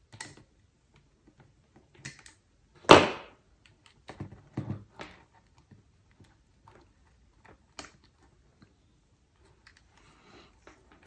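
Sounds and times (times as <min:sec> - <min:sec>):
plastic parts clicking and knocking: 0:00.0 - 0:02.6, 0:03.4 - 0:08.7.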